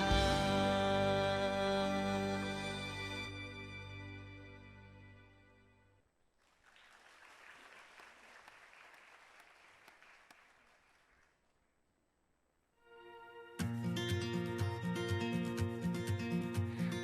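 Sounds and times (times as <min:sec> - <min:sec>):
faint audience applause: 0:06.4 - 0:11.6.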